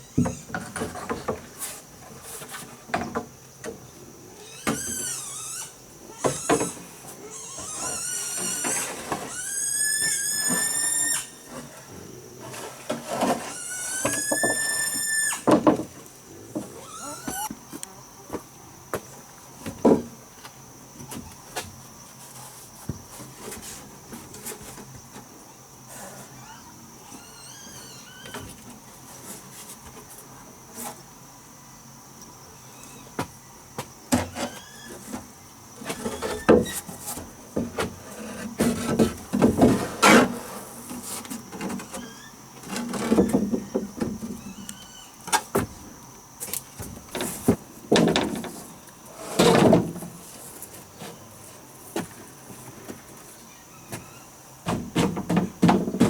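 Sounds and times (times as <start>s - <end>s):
wood scraping and creaking: 12.4s - 15.9s, 34.1s - 44.8s.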